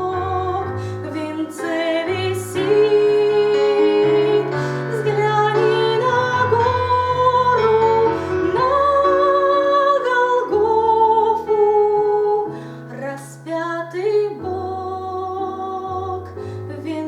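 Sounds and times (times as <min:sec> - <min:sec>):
instrumental accompaniment: 0:00.0 - 0:12.9
woman singing a hymn: 0:00.0 - 0:17.0.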